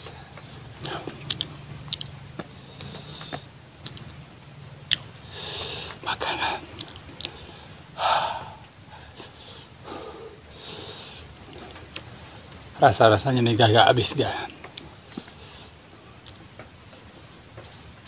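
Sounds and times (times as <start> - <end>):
birds chirping: 0.0 - 18.0
insect trilling: 0.0 - 18.0
chewing and crunching peppers: 0.9 - 4.2, 4.8 - 5.2.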